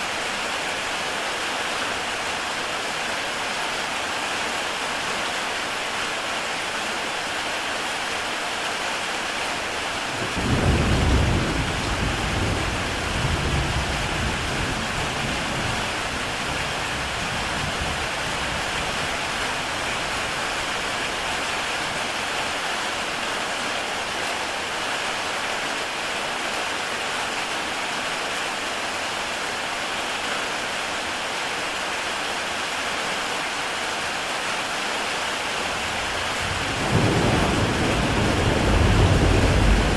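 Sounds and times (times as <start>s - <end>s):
heavy rain on a tile roof: 0.0s - 39.9s
low thunder rumble: 10.2s - 15.8s, 35.8s - 39.9s.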